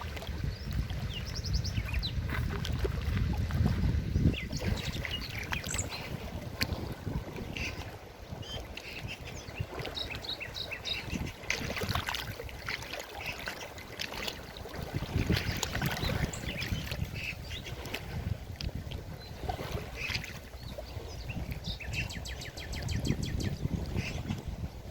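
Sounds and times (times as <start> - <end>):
small birds chirping: 8.4 - 11.3.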